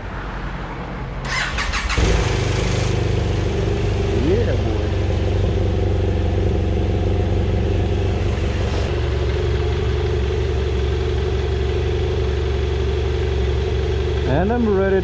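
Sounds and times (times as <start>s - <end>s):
motorcycle engine running: 1.3s - 15.0s.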